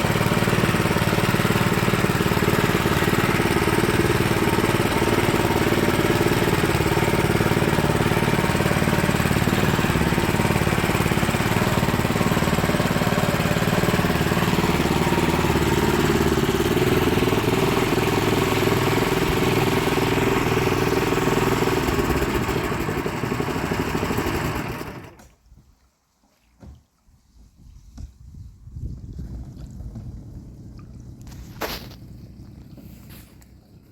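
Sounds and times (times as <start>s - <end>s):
small engine running: 0.0s - 25.2s.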